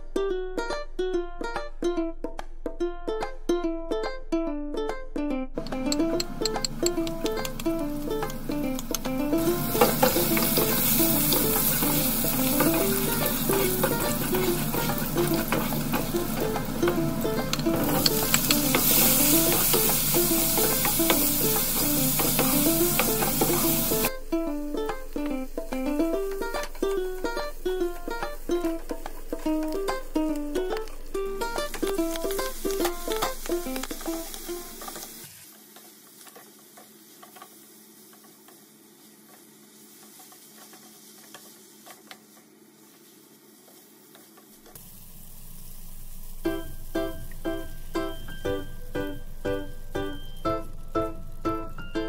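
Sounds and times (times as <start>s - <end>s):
background music: 0.0s - 34.9s, 46.5s - 52.0s
wooden spatula knocking pan: 5.6s - 24.1s
bacon sizzling in oil: 5.6s - 52.0s.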